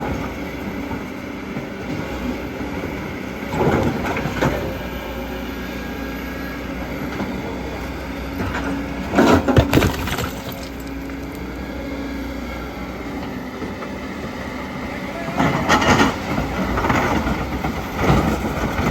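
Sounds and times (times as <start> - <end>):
diesel engine running: 0.2 - 18.9
clattering crashes: 9.2 - 11.4.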